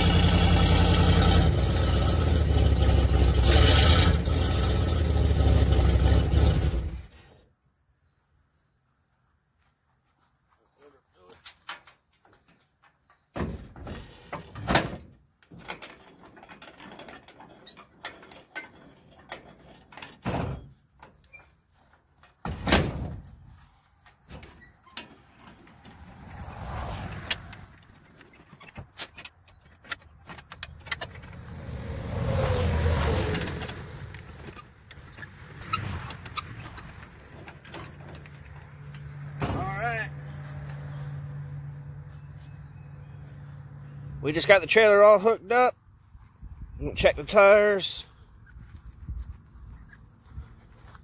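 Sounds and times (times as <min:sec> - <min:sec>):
metal clanks and rattles: 0:11.3 - 0:21.5, 0:24.0 - 0:31.6, 0:33.3 - 0:39.6.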